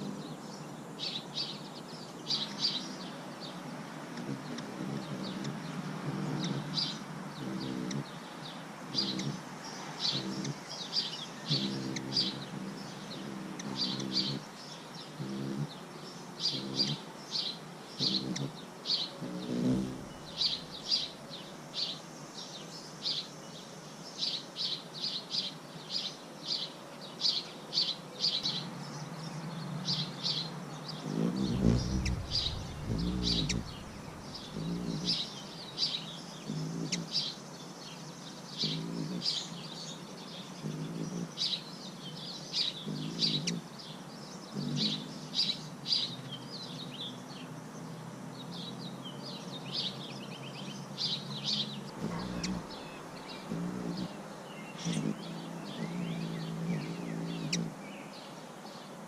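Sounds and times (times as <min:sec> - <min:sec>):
birds chirping: 0:00.0 - 0:59.0
lower-pitched bird calls: 0:04.2 - 0:08.3, 0:08.9 - 0:15.8, 0:16.4 - 0:21.3, 0:29.9 - 0:37.4, 0:38.6 - 0:39.6, 0:42.5 - 0:43.7, 0:44.5 - 0:47.0, 0:49.6 - 0:58.2.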